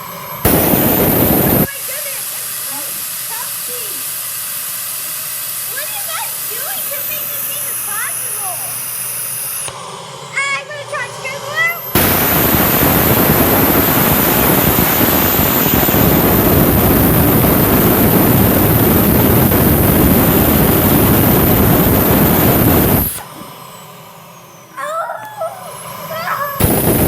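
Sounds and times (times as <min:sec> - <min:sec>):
vacuum cleaner motor whining: 0:00.0 - 0:27.0.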